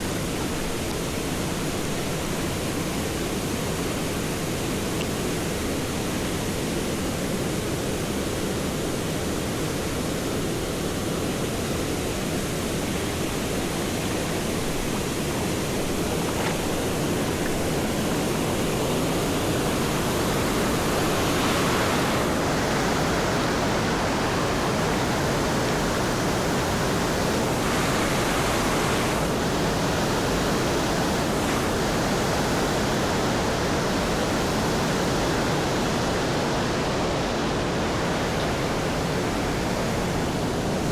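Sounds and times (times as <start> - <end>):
waterfall rushing: 10.8 - 40.9.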